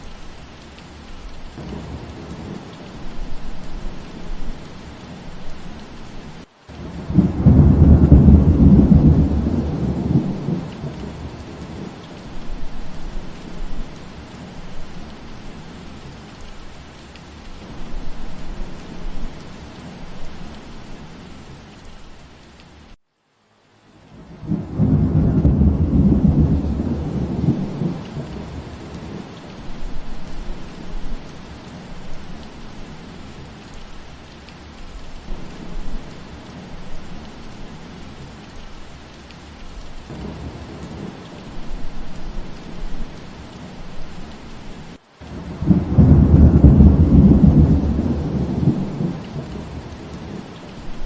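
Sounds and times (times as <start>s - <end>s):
steady rain: 0.0s - 51.0s
rolling thunder rumble: 6.8s - 12.0s, 24.2s - 32.5s, 40.1s - 43.8s, 45.3s - 51.0s.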